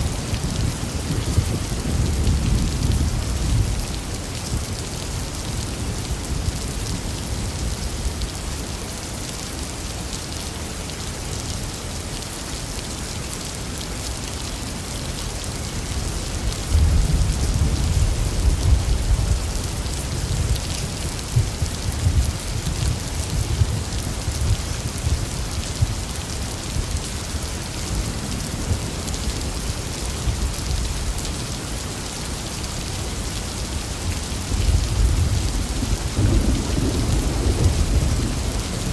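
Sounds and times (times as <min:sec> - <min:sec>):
heavy rain hissing: 0:00.0 - 0:38.9
thunder rumbling: 0:34.4 - 0:38.9.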